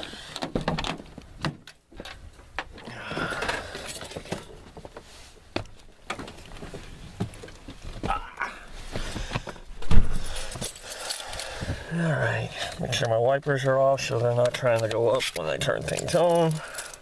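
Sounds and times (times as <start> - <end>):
keys jangling: 10.0 - 11.5.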